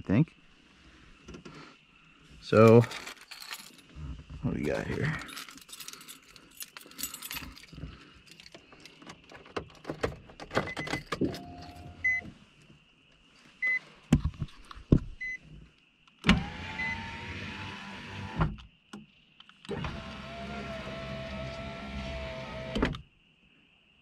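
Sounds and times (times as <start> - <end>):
power window motor whine: 16.2 - 18.6, 19.7 - 23.0.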